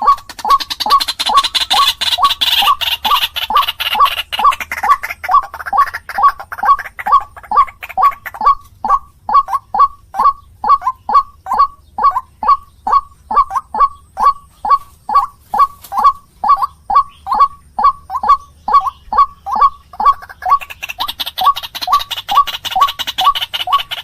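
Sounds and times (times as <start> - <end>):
waterhen calling harsh notes: 0.0 - 24.0.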